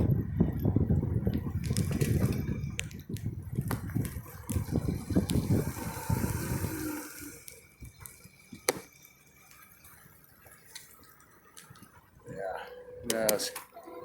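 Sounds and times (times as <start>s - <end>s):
wind buffeting microphone: 0.0s - 8.4s.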